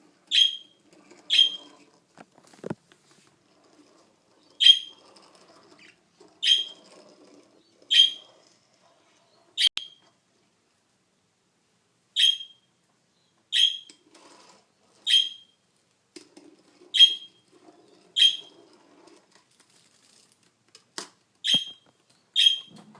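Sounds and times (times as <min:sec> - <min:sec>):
budgerigar chirping: 0:00.3 - 0:00.7, 0:06.4 - 0:06.7, 0:07.9 - 0:08.2, 0:12.2 - 0:12.6, 0:13.5 - 0:13.9, 0:18.2 - 0:18.5, 0:21.4 - 0:21.8, 0:22.4 - 0:22.8.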